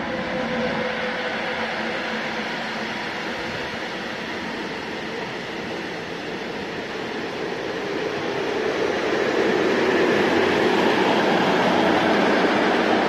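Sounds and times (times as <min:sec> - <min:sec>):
train wheels on rails: 0:00.0 - 0:13.0.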